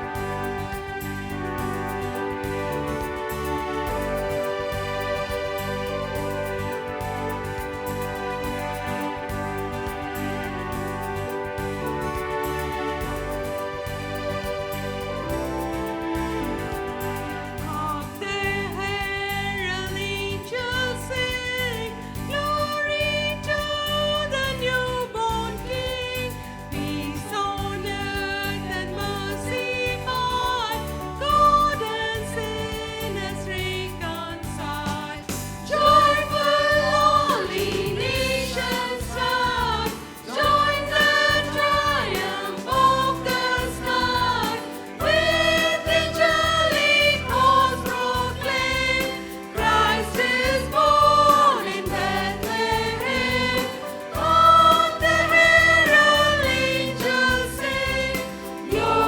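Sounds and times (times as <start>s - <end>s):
choir singing: 0.0s - 18.0s, 34.8s - 59.0s
instrumental backing music: 0.0s - 59.0s.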